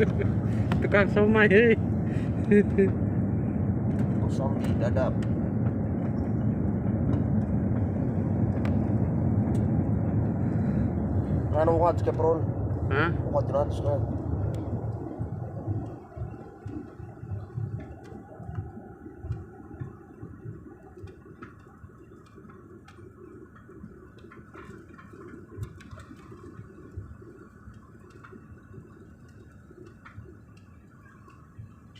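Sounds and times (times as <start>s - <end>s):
airliner cabin rumble: 0.0s - 27.6s
faint clicks: 15.8s - 31.7s.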